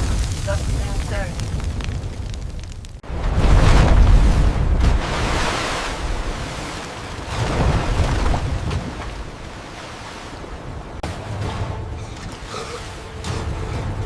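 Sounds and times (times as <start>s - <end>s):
deep rumble: 0.0s - 9.7s
rushing hiss of stormy sea: 3.3s - 7.7s.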